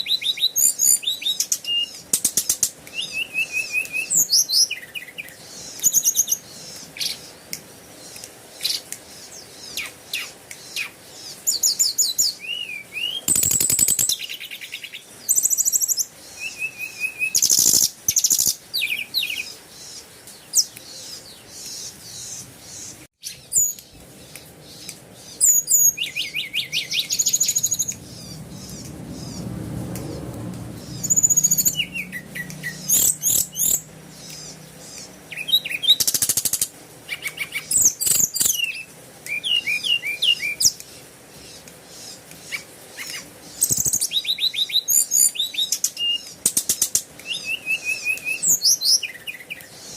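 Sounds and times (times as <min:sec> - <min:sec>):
small birds chirping: 0:00.0 - 0:49.9
harsh bird rattling: 0:13.3 - 0:14.2.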